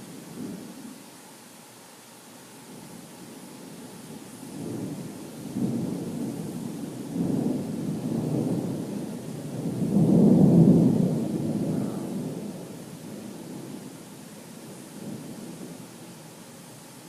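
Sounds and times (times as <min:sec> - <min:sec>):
thunder rumbling: 0:04.1 - 0:16.2.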